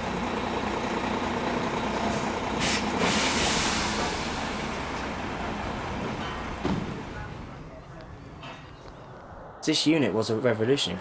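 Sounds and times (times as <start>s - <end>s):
diesel engine running: 0.0s - 7.6s
air hiss: 2.6s - 4.3s.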